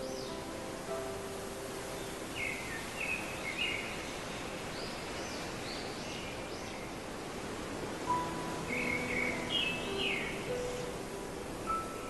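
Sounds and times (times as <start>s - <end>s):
steady outdoor hiss: 0.0s - 12.0s
wild birds chirping: 1.8s - 7.2s, 8.1s - 12.0s.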